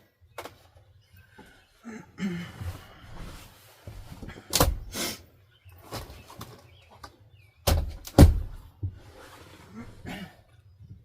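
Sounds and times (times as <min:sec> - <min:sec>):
rustling scrape: 0:02.6 - 0:04.2, 0:09.0 - 0:10.0
loud thud of something shutting: 0:07.7 - 0:08.6.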